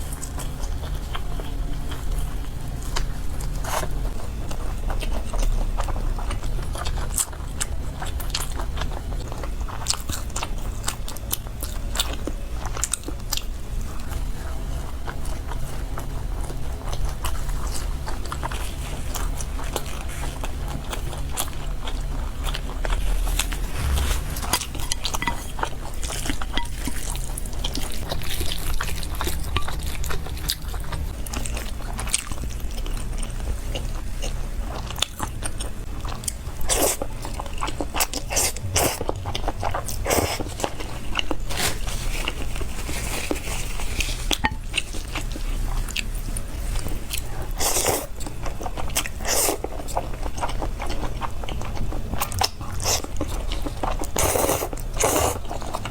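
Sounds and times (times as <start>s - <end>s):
crunchy chewing: 0.0s - 55.9s
low steady hum: 0.0s - 55.9s.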